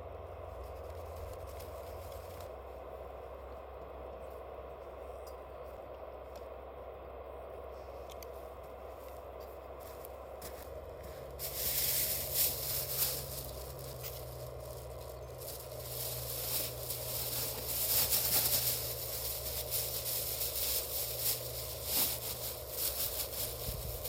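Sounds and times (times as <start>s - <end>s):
steady low hum: 0.0s - 24.0s
rustling and scraping: 0.5s - 2.6s, 9.0s - 24.0s.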